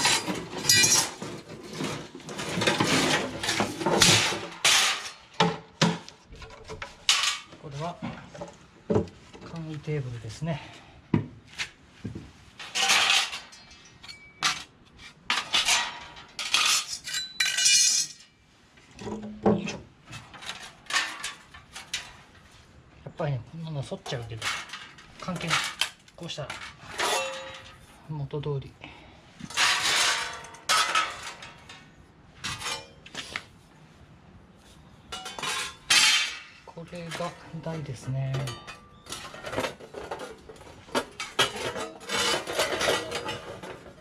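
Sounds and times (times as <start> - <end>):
metal sheets clanking: 0.0 - 6.1, 24.2 - 27.8, 29.4 - 31.8, 35.1 - 44.0
metal plates clinking and scraping: 0.0 - 8.6, 12.6 - 19.4, 20.1 - 22.4, 24.0 - 28.0, 29.4 - 33.4, 35.0 - 44.0.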